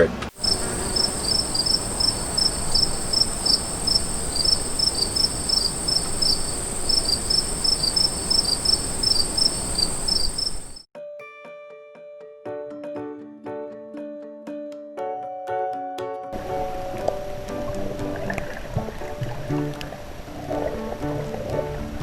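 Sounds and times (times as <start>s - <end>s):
faint background hiss: 0.1s - 10.8s
insects chirping: 0.3s - 10.9s.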